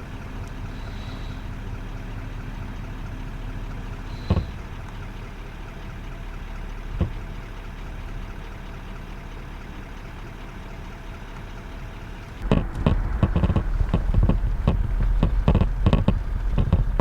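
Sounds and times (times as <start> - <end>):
vehicle engine idling: 0.0 - 17.0
loud irregular thumps and rumbling: 3.7 - 5.0, 6.8 - 7.5, 12.2 - 17.0.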